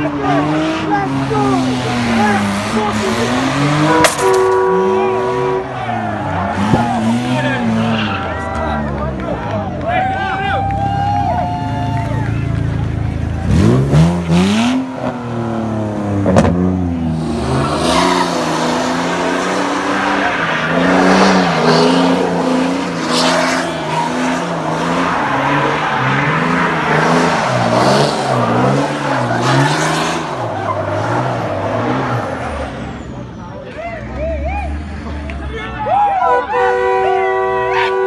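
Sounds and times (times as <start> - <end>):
car engine revving: 0.0 - 35.6
tyres squealing: 17.2 - 33.4.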